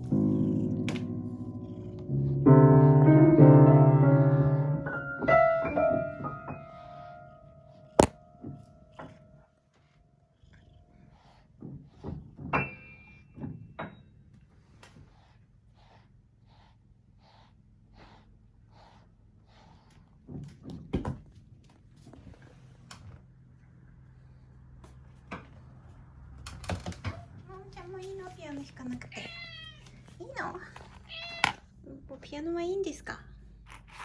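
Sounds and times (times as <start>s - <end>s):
piano notes played by cat: 0.0s - 9.4s.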